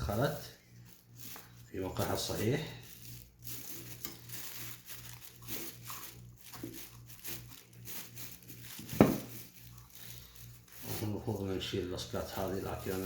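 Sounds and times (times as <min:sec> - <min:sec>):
faint rustling of wires: 0:00.0 - 0:13.0.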